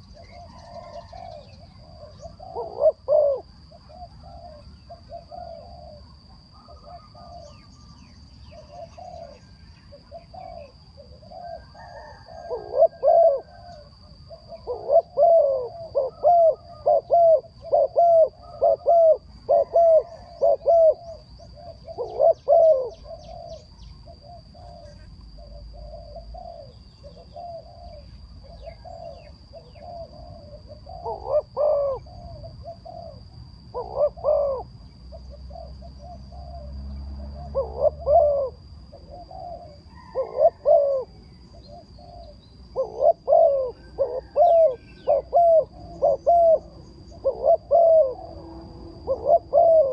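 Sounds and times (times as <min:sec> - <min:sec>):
bird calling low notes: 0:37.4 - 0:49.9.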